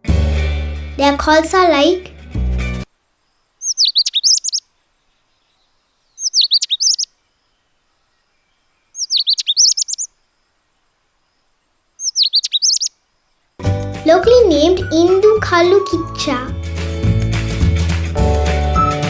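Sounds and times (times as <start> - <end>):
robin chirping: 3.1 - 13.6.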